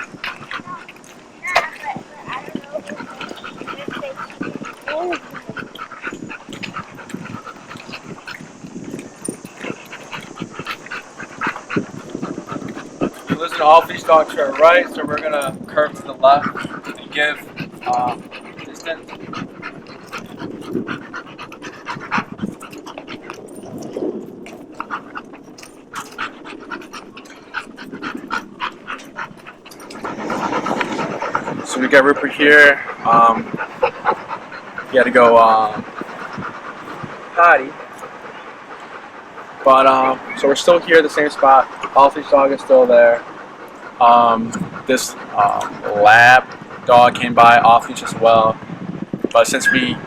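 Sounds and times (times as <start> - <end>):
dog panting: 0.0 - 50.0.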